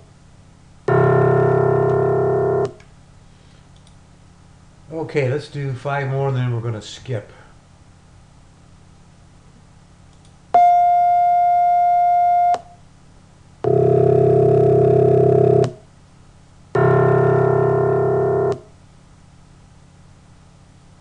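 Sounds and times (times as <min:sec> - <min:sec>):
low many-pitched steady tone: 0:00.9 - 0:02.8, 0:16.8 - 0:18.6
pure test tone: 0:00.9 - 0:02.8, 0:10.6 - 0:12.8, 0:13.6 - 0:15.8, 0:16.8 - 0:18.7.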